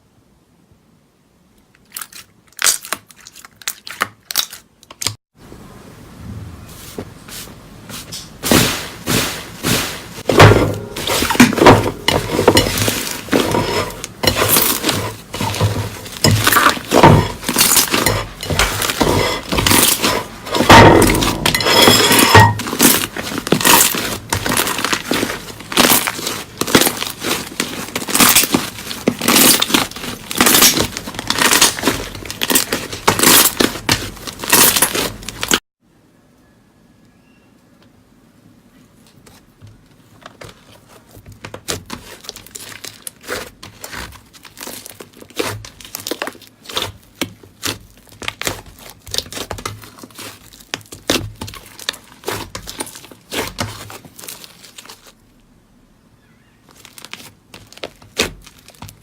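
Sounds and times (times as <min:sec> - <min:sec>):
slime crackling and popping: 0:01.8 - 0:05.2, 0:22.6 - 0:35.6, 0:41.6 - 0:55.2, 0:56.7 - 0:59.0.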